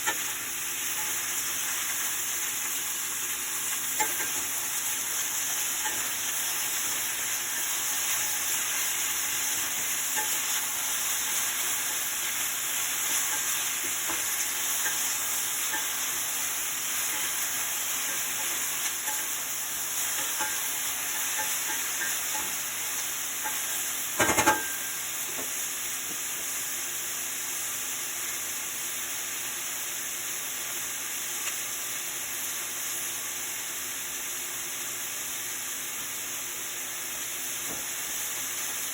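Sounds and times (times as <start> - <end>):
food sizzling in oil: 0.0 - 38.9
utensil clicking against pan: 3.8 - 4.5
utensil knocking on pan: 24.2 - 25.5.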